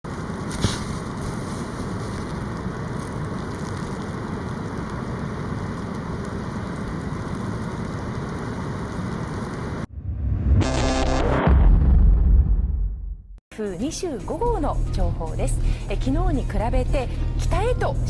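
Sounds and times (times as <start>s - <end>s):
rain: 0.1s - 9.9s
multi-tone pitched sound: 10.3s - 11.6s.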